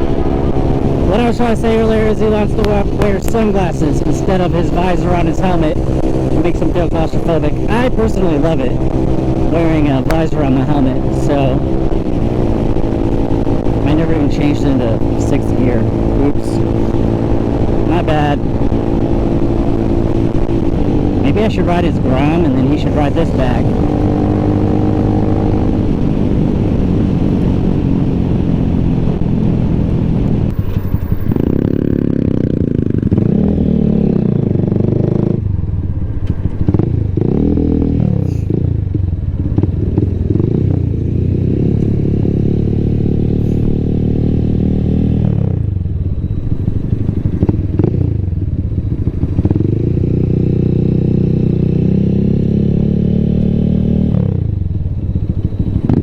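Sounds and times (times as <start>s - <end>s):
small motorcycle engine accelerating: 14.9s - 35.5s, 36.4s - 56.0s.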